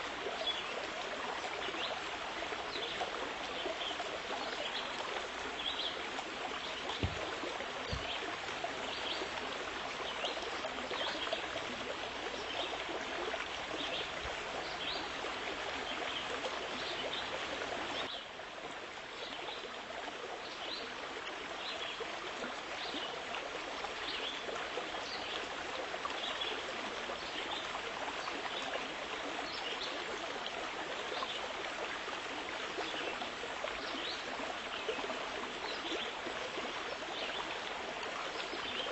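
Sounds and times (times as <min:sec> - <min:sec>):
water rushing and splashing: 0:00.0 - 0:18.9.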